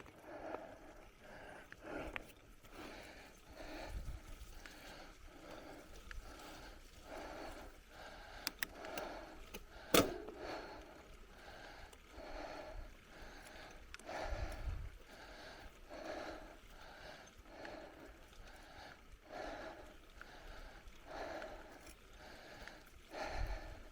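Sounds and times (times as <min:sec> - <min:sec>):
heavy rhythmic breathing: 0:00.0 - 0:23.9
sharp clicks: 0:08.4 - 0:10.6.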